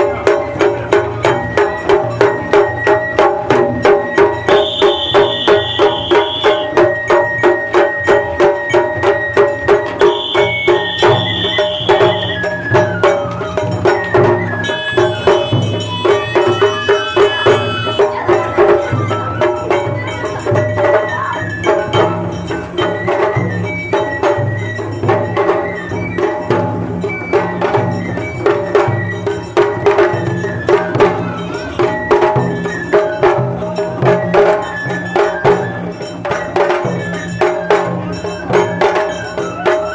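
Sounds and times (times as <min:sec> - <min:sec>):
drums keeping a steady beat: 0:00.0 - 0:39.9
pitched melody line: 0:03.2 - 0:07.2, 0:09.6 - 0:22.6.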